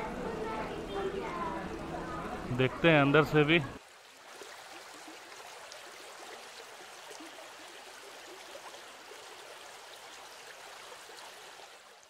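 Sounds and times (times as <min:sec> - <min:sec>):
faint running water gurgling: 0:00.0 - 0:12.0.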